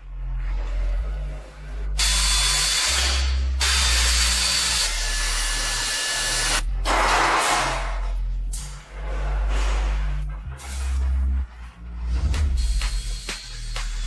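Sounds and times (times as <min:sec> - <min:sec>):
background music bass line: 0:00.0 - 0:14.0
hissing power tool noise: 0:02.0 - 0:07.8.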